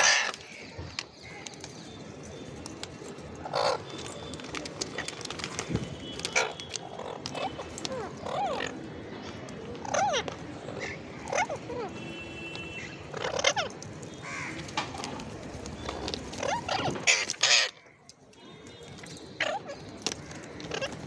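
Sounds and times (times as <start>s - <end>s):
parakeet chirps and squawks: 13.1s - 13.7s, 16.4s - 17.8s.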